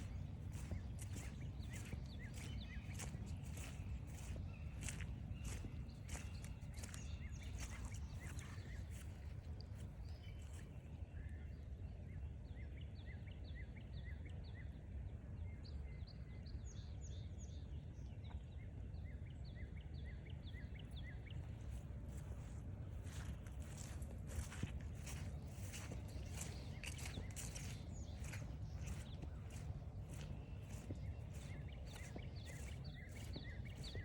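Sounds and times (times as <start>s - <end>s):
footsteps on trail: 0.0s - 10.8s, 21.4s - 34.0s
songbirds chirping: 0.0s - 14.7s, 18.2s - 34.0s.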